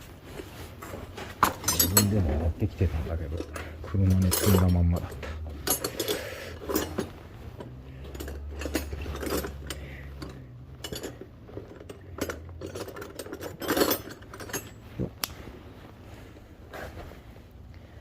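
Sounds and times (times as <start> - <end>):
metal hand tools clinking: 1.4 - 15.0.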